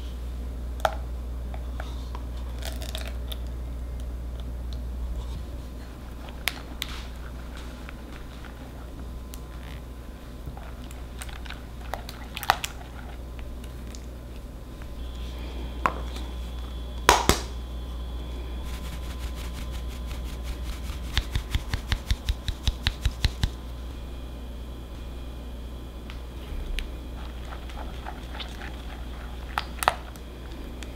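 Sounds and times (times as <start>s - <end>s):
sieve tapping: 18.6s - 23.6s
whisk stirring batter in glass bowl: 18.6s - 23.6s, 27.2s - 30.2s.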